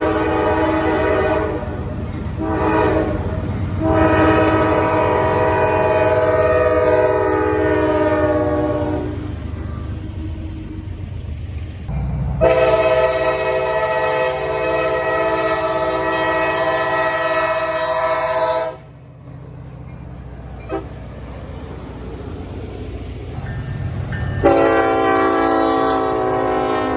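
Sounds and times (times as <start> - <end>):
locomotive air horn blasts: 0.0 - 1.8, 2.4 - 9.3, 12.4 - 18.9, 20.6 - 21.0, 24.4 - 26.9
train rumbling: 0.0 - 26.9.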